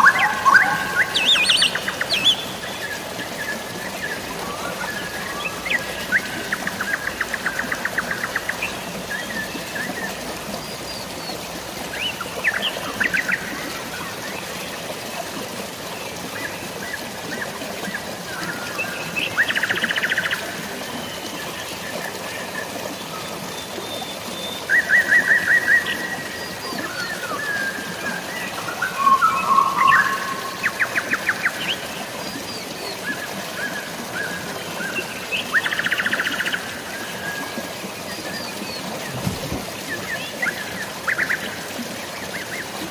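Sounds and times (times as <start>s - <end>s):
birds singing: 0.0s - 14.2s, 22.9s - 41.6s
flowing water: 0.0s - 42.9s
rain hiss: 0.0s - 42.9s.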